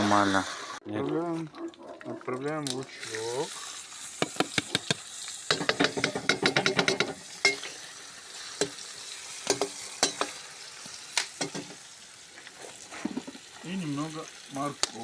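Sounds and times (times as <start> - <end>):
onions sizzling in hot oil: 0.0 - 0.8, 2.8 - 15.0
utensil scraping and knocking pot: 4.2 - 7.8, 9.4 - 10.4, 13.0 - 13.5.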